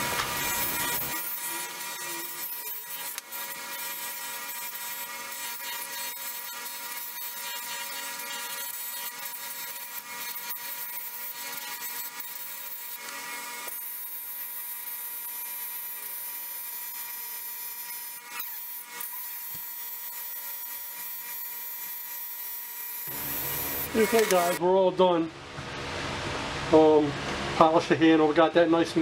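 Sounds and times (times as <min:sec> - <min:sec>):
power tool motor whine: 0:00.0 - 0:24.6
metal rasping on wheel: 0:00.2 - 0:13.8.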